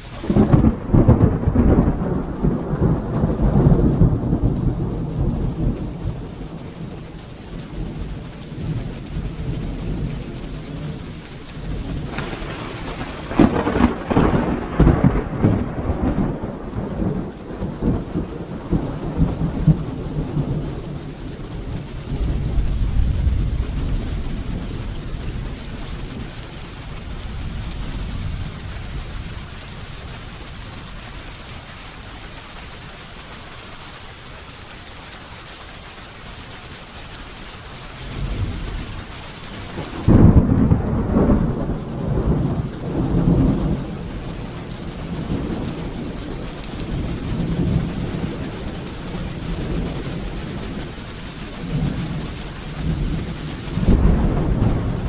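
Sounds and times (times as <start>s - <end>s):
distant thunder rumbling: 0.0s - 31.6s, 37.8s - 55.0s
rain falling: 0.0s - 55.0s
loud thunderclap: 0.2s - 11.0s, 11.6s - 26.4s, 39.6s - 51.0s, 51.6s - 55.0s.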